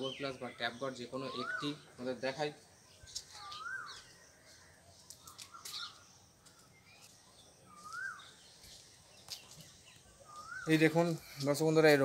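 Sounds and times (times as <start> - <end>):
faint high bird chirps: 0.0 - 11.6
whistled bird note: 7.7 - 8.4, 10.2 - 11.0.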